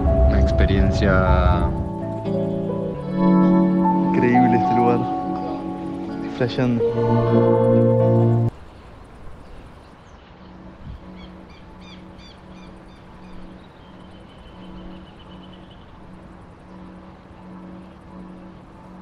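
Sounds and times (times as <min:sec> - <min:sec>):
low pulsing hum: 0:00.0 - 0:03.8
high bird trill: 0:02.4 - 0:18.7
bird chirping: 0:07.7 - 0:18.8.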